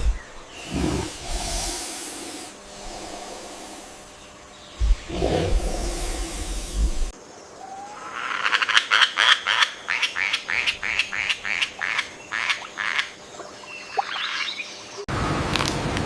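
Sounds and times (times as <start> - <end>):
steady rushing noise: 0.0 - 7.2.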